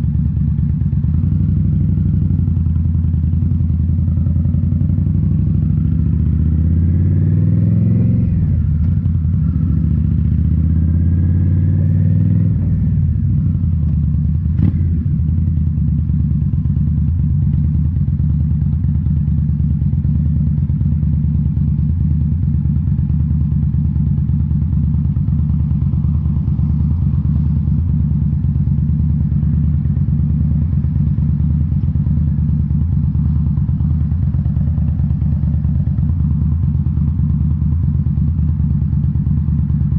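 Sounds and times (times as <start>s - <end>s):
motorcycle engine revving: 1.2s - 20.6s, 22.6s - 39.9s.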